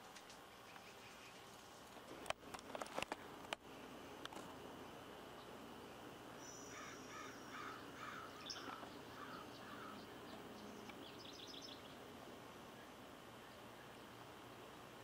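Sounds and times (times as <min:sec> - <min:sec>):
steady background hiss: 0:00.0 - 0:15.0
repeated bird call notes: 0:06.4 - 0:12.0.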